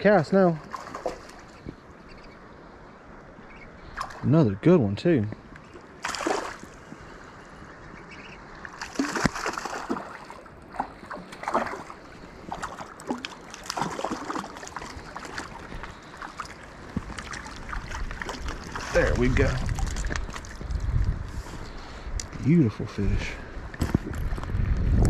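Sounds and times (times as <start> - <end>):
creek water rushing: 0.0 - 19.7
water splashes and knocks: 0.6 - 1.8, 4.0 - 4.3, 5.7 - 6.8, 8.6 - 21.1.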